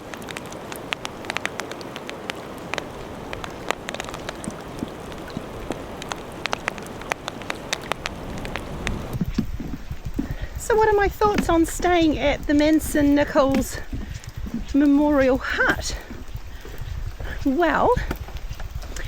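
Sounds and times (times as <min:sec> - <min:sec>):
raindrops ticking close by: 0:00.0 - 0:19.0
steady rain falling: 0:00.0 - 0:19.0.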